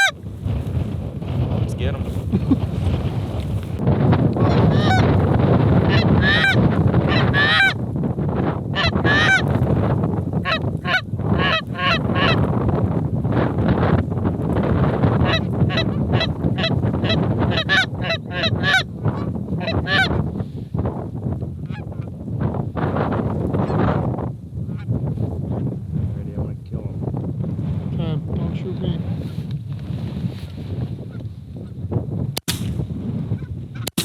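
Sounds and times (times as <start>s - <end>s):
wind on microphone: 0.0s - 34.0s
geese honking: 4.4s - 5.2s, 5.9s - 7.8s, 8.8s - 9.6s, 10.4s - 12.4s, 15.3s - 20.1s.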